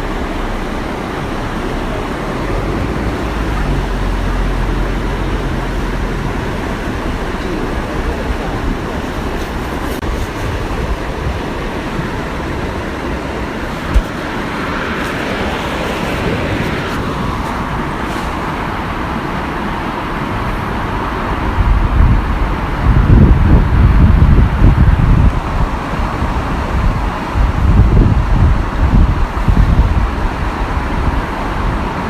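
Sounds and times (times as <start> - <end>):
waterfall rushing: 0.0 - 32.0
wind buffeting microphone: 0.0 - 32.0.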